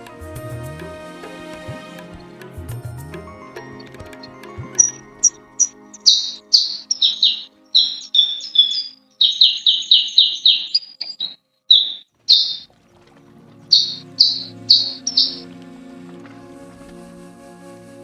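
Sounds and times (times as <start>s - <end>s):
faint background music: 0.0s - 18.0s
songbird singing whistled notes: 3.6s - 12.6s, 13.7s - 15.5s.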